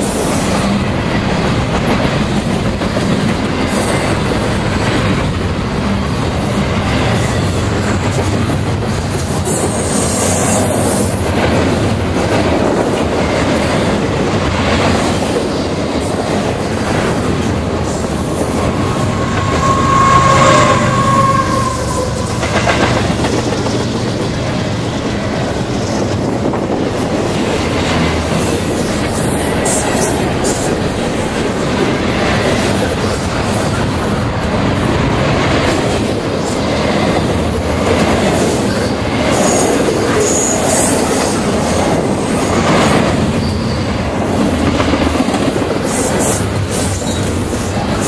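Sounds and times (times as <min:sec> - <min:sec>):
freight train wheels on rails: 0:00.0 - 0:48.0
high-pitched wheel squeal: 0:17.4 - 0:23.6.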